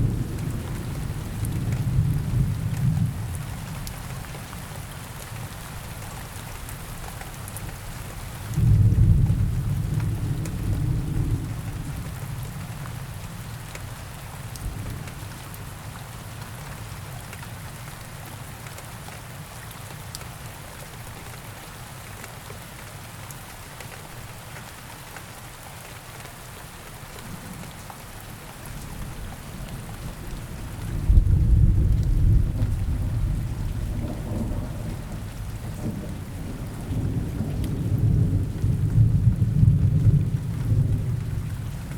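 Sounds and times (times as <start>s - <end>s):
steady rain in forest: 0.0s - 41.9s
thunder rumbling: 29.6s - 41.9s.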